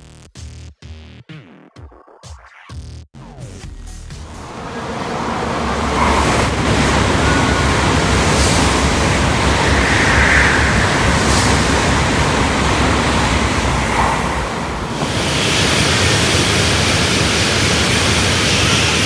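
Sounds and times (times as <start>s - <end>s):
bullet train rushing past: 4.3s - 19.0s.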